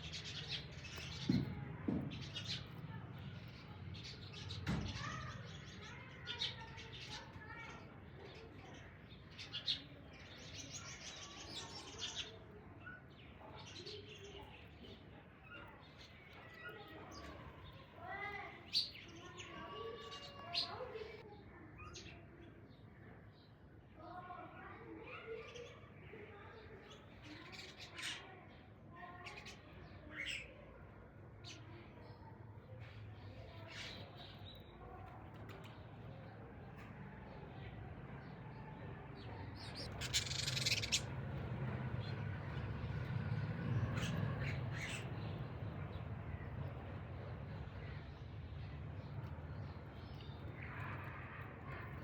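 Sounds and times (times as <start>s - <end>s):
small birds chirping: 0.0s - 52.0s
sharp loud bird chirps: 39.7s - 41.1s.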